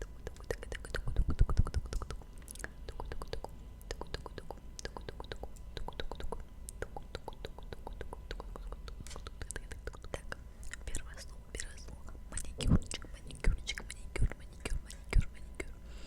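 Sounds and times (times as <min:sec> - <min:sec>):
wet mouth clicks and smacks: 0:00.0 - 0:10.9.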